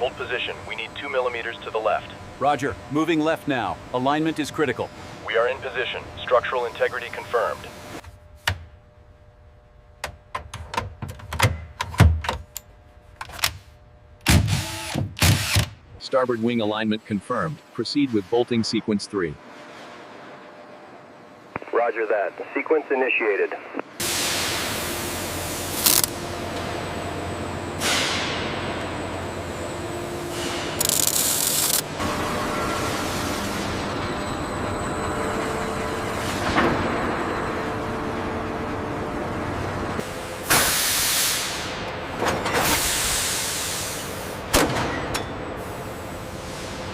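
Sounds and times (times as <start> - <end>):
faint steady hum: 0.0 - 24.0
compressed air hiss: 40.5 - 41.8, 42.6 - 44.4.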